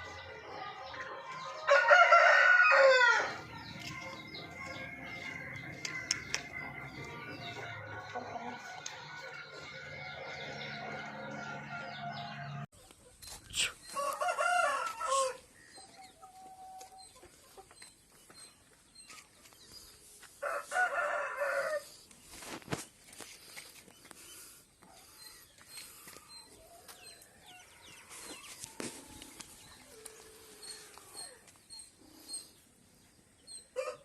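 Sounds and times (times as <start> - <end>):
chicken clucking: 0.0 - 21.6
rooster crowing: 1.7 - 3.5, 14.0 - 15.4, 20.4 - 21.8
sharp clicks: 5.8 - 6.5.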